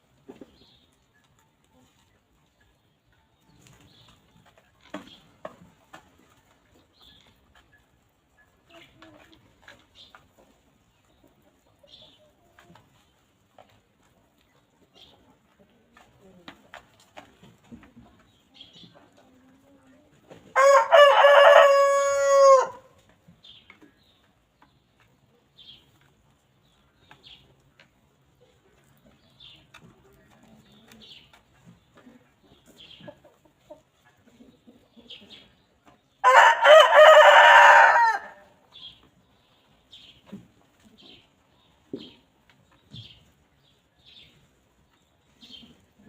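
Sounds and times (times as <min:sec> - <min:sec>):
rooster crowing: 0:20.6 - 0:22.9, 0:36.2 - 0:38.4.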